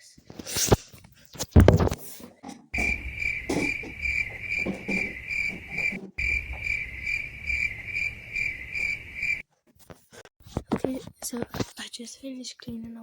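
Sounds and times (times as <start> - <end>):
cricket chirping: 2.8 - 9.4.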